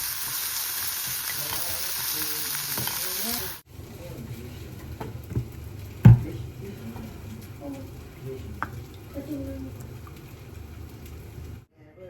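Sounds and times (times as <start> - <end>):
food sizzling in frying pan: 0.0 - 11.7.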